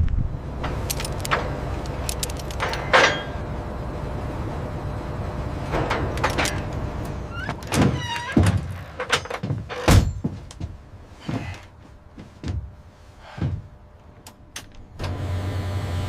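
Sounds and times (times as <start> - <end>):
low steady rumble: 0.0 - 16.0
sharp knocks and clunks: 7.5 - 11.6.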